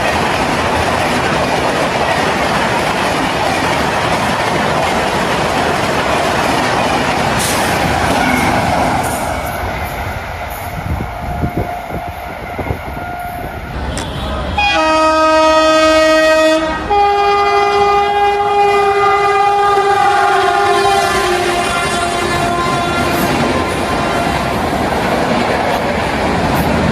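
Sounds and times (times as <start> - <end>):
train passing on rails: 0.0 - 26.9
train horn: 11.3 - 24.7.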